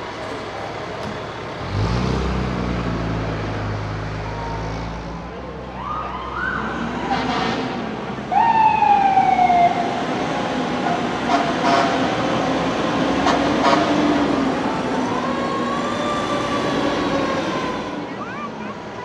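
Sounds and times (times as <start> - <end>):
heavy truck engine rumbling: 0.0 - 19.0
fire truck siren: 3.9 - 18.5.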